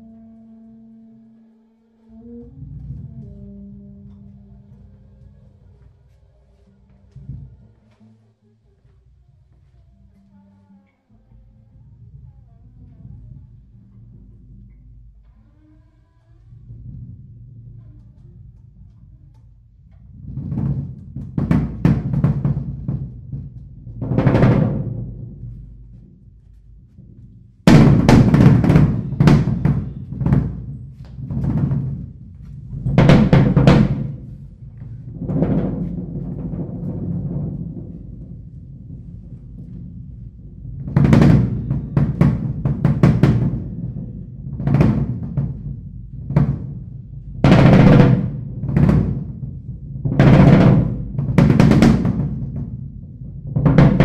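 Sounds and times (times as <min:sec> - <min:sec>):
drum kit playing: 0:27.6 - 0:38.9.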